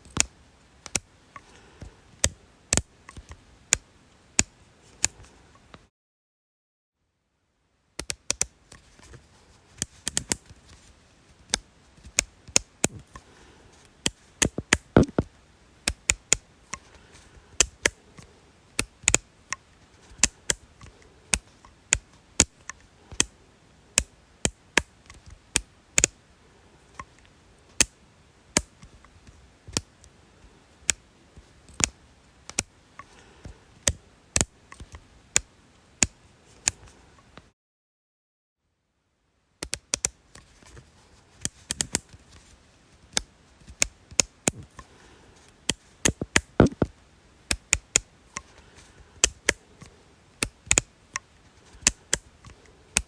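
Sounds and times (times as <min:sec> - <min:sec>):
sharp dry clicks: 0:14.0 - 0:16.9, 0:17.6 - 0:23.4, 0:39.6 - 0:40.2, 0:45.6 - 0:48.6, 0:49.2 - 0:53.0.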